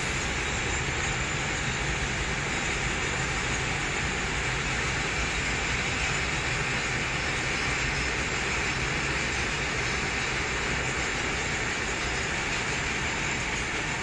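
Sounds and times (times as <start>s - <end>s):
freight train wheels rumbling on rail: 0.0s - 14.0s.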